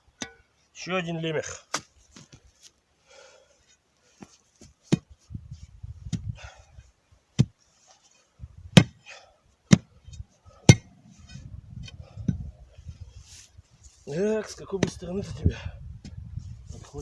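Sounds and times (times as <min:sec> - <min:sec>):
shovel striking soil: 0:08.8 - 0:09.0, 0:09.7 - 0:09.9, 0:10.7 - 0:11.0
scraping of earth: 0:09.8 - 0:15.6.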